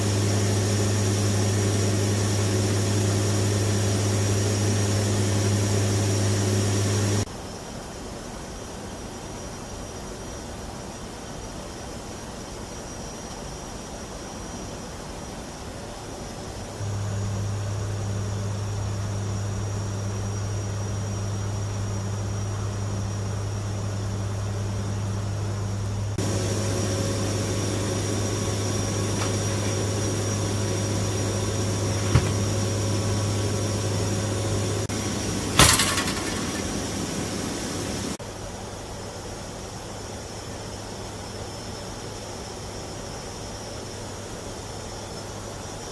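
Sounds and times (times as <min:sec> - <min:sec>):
turboprop engines droning: 0:00.0 - 0:07.3, 0:16.7 - 0:38.2.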